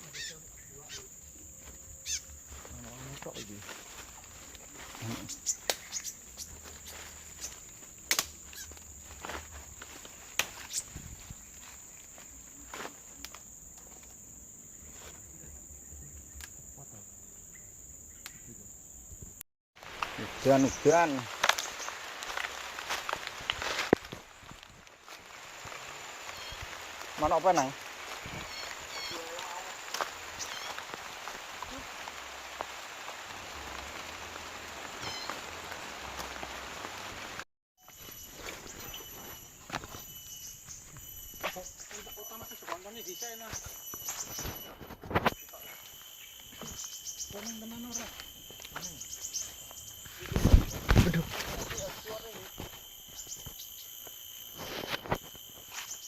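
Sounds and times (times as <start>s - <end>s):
insects chirring: 0.0s - 56.0s
rain falling: 19.8s - 37.4s.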